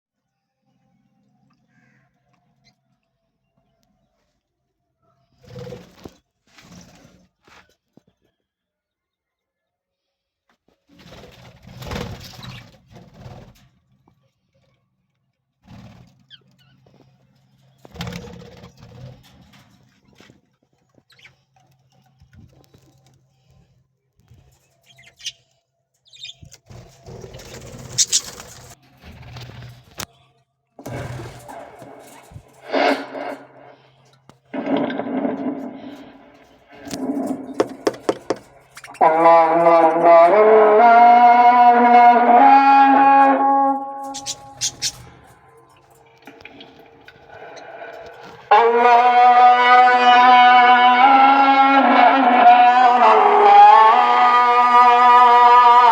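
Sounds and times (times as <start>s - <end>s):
birds in aviary: 0.2s - 50.4s
budgerigars chirping: 27.4s - 28.7s, 44.1s - 45.1s
loud noisy bursts: 30.8s - 33.9s, 34.6s - 41.0s.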